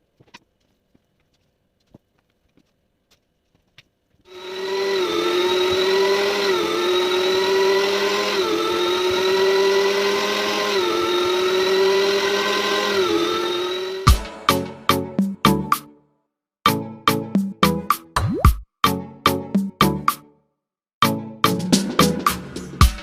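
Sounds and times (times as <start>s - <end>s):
kitchen appliance motor running: 4.3s - 14.2s.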